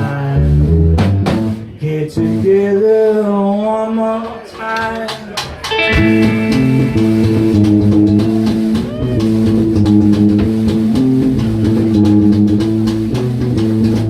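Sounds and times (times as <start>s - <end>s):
bass guitar: 0.0s - 2.8s, 5.7s - 14.0s
drum kit beat: 0.6s - 2.5s, 5.4s - 14.0s
electric guitar chords: 5.7s - 13.1s.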